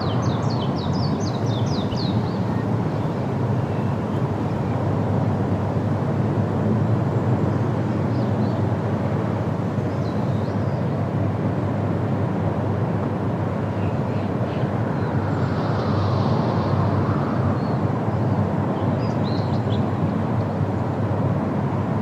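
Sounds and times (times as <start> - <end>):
faint high bird chirps: 0.0 - 4.8
low wind rumble: 0.0 - 10.0.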